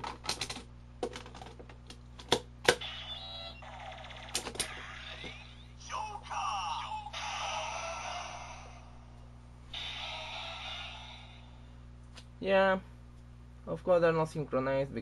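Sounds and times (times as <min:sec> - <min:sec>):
toy electronic sound effects: 0:02.7 - 0:06.2, 0:09.7 - 0:11.5.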